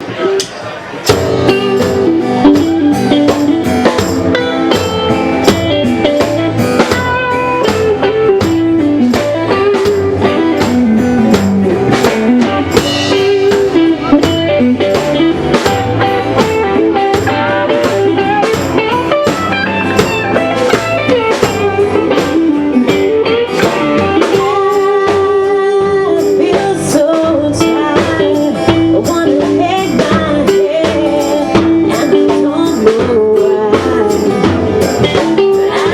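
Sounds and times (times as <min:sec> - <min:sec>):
blues band playing: 0:00.0 - 0:35.9
drum kit beat: 0:00.0 - 0:35.9
guitar: 0:00.0 - 0:35.9
person singing: 0:23.5 - 0:35.9.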